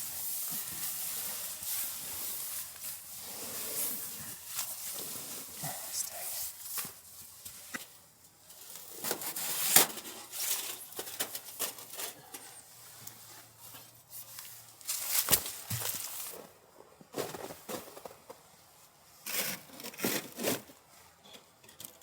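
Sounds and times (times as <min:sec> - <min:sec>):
things being handled: 0:08.6 - 0:12.6.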